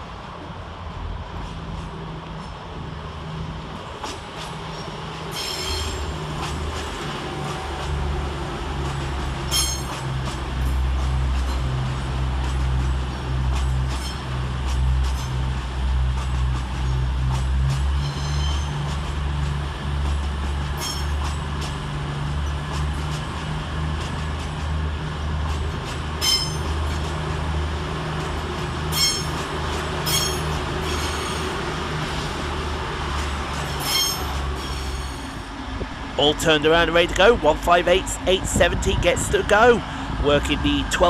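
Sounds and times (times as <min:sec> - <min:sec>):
train diesel engines rumbling: 0:00.0 - 0:41.0
train wheels squealing: 0:04.7 - 0:06.1, 0:09.5 - 0:10.0, 0:13.9 - 0:14.3, 0:17.8 - 0:19.0, 0:20.7 - 0:21.3, 0:26.2 - 0:26.7, 0:28.9 - 0:29.4, 0:30.0 - 0:31.6, 0:33.5 - 0:35.5.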